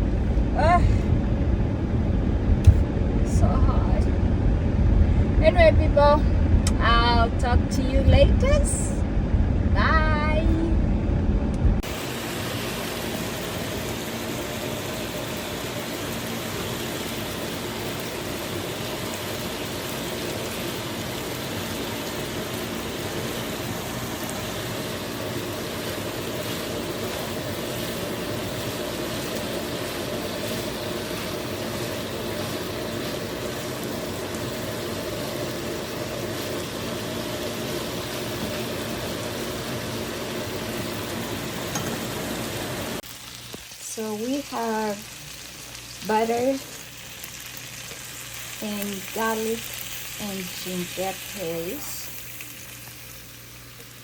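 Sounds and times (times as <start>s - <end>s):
low even hum: 0.0s - 54.0s
food sizzling in a frying pan: 11.8s - 54.0s.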